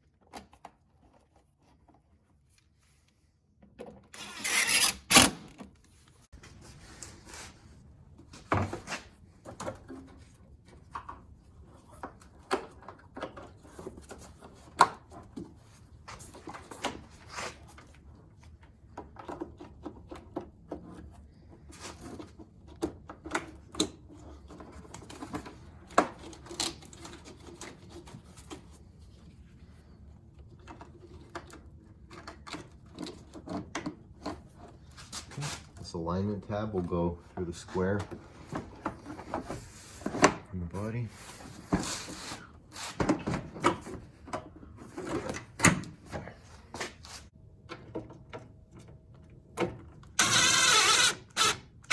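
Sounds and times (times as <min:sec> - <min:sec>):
tools and car parts clicking and knocking: 0:30.5 - 0:34.8, 0:47.6 - 0:51.9.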